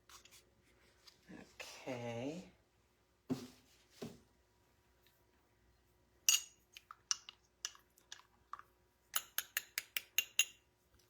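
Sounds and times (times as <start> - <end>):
spoon clinking against glass cup: 6.3 - 7.8, 9.2 - 10.6.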